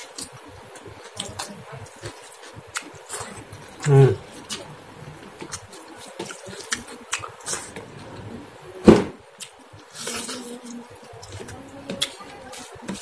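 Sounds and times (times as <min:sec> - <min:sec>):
mouth noises: 0:01.1 - 0:08.8.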